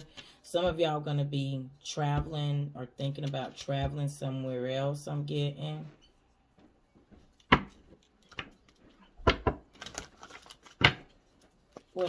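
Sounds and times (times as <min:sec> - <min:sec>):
cards rustling: 0:09.7 - 0:12.0.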